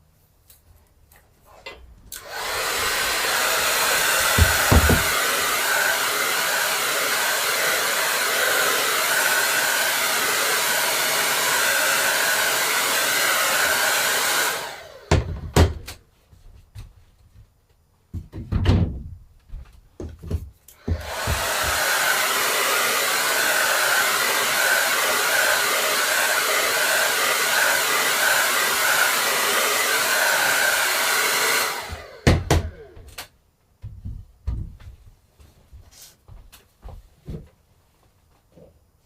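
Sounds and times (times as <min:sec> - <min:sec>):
electric blower running: 0:02.2 - 0:15.7, 0:20.8 - 0:33.2
dull knocks: 0:04.3 - 0:05.1.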